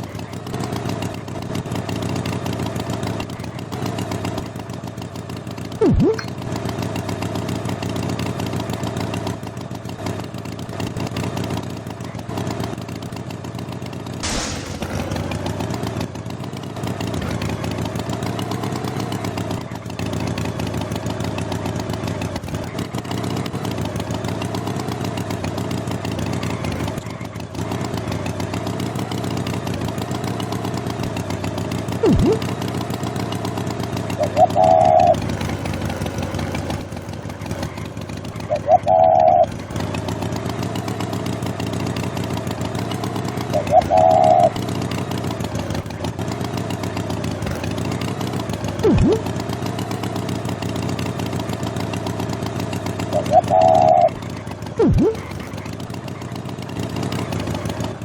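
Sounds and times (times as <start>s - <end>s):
engine buzzing drone: 0.0s - 13.0s, 14.0s - 58.0s
sharp knock: 14.2s - 15.4s
sliding tone: 32.0s - 32.5s, 48.8s - 49.2s, 54.8s - 55.4s.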